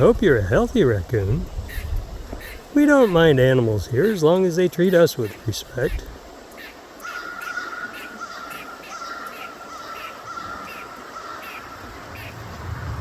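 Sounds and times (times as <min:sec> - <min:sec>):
bird calling repeated notes: 0:01.7 - 0:03.4, 0:04.0 - 0:12.4.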